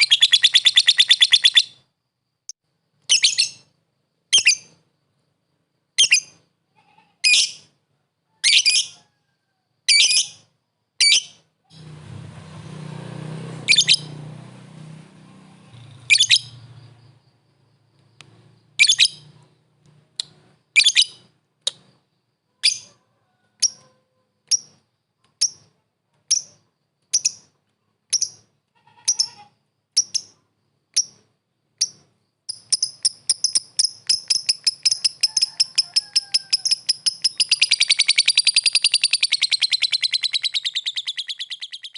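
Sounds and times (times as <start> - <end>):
lovebird chirping: 0.0 - 1.9, 3.0 - 4.8, 6.0 - 6.5, 7.2 - 7.8, 8.4 - 9.0, 9.9 - 11.9, 13.7 - 14.2, 15.6 - 17.4, 18.2 - 23.0, 23.6 - 41.9.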